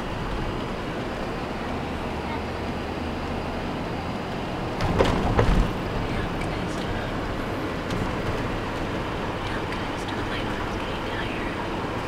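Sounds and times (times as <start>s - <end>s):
car road and engine noise: 0.0s - 12.0s
knocks and low thumps: 4.8s - 7.1s.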